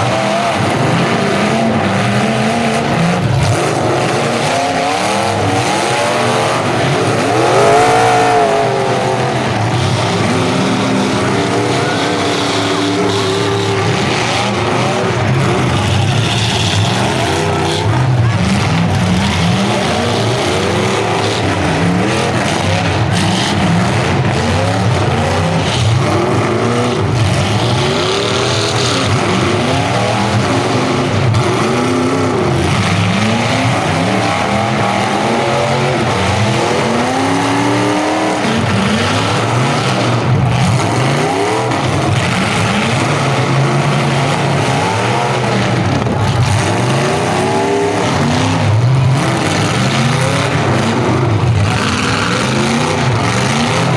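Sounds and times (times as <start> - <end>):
car engines revving hard: 0.0 - 53.9.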